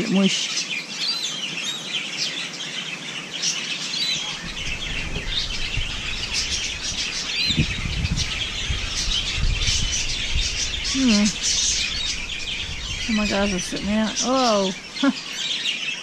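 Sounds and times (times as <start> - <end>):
flock of birds chirping: 0.0 - 16.0
low rumble: 4.4 - 14.9.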